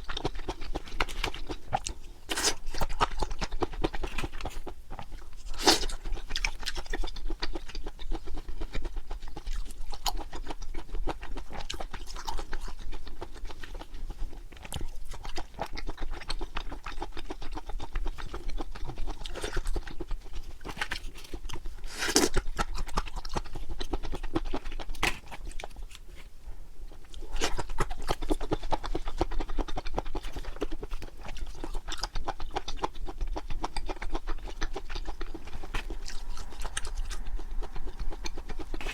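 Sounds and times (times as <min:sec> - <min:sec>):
wet chewing mouth sounds: 0:00.0 - 0:26.3, 0:26.9 - 0:38.9.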